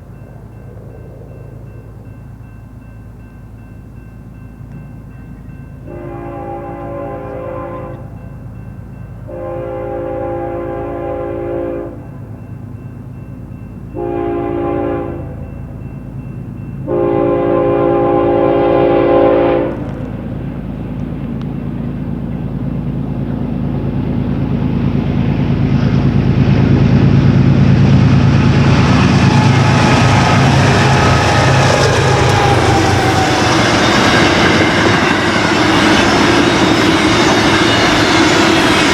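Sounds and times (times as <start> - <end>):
train rumbling past: 0.0 - 38.9
locomotive air horn: 5.9 - 8.2, 9.3 - 12.2, 14.0 - 15.5, 16.8 - 20.1, 29.3 - 36.7.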